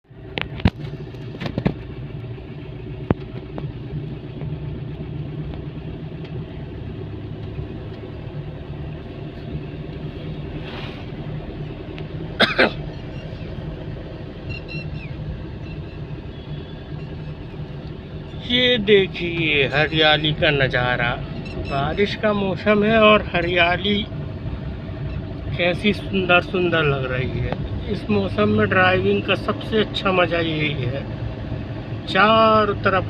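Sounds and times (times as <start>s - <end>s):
car road and engine rumble: 0.0s - 33.0s.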